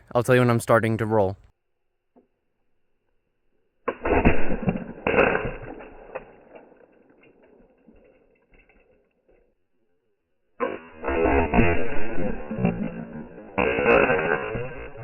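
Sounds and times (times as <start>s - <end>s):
potato cannon bang: 3.9s - 6.5s.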